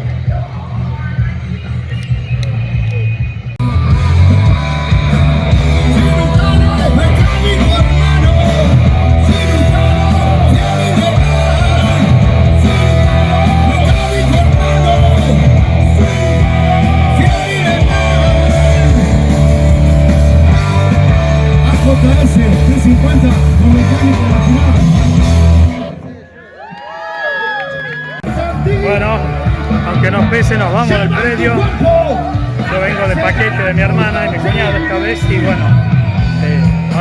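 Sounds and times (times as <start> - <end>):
rock music: 0.0 - 26.2, 28.2 - 37.0
person singing: 3.6 - 25.2
electric guitar: 3.6 - 26.1.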